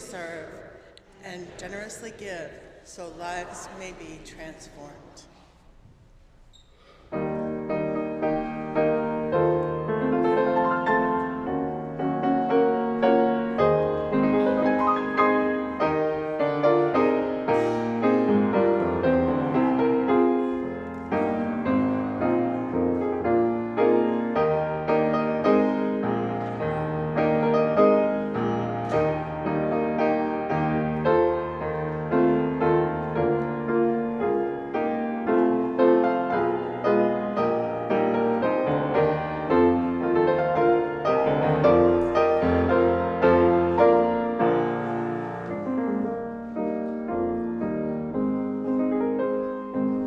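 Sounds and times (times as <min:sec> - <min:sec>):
slow piano piece in chords: 0:07.1 - 0:50.0.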